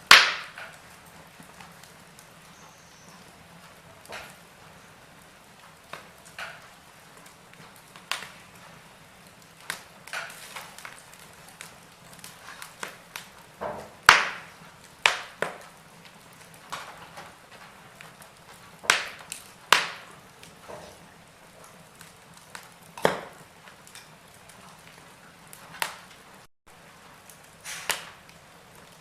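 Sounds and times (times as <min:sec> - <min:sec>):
wood fire crackling: 0:00.0 - 0:29.0
faint hiss: 0:26.8 - 0:28.4.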